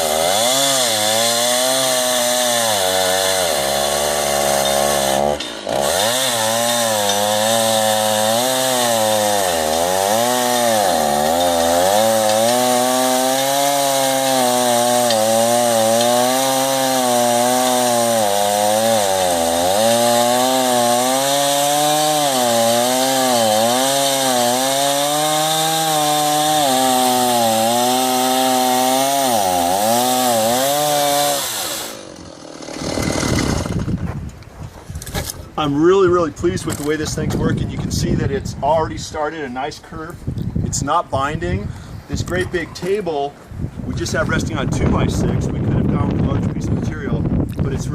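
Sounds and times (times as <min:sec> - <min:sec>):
chainsaw cutting log: 0:00.0 - 0:34.3.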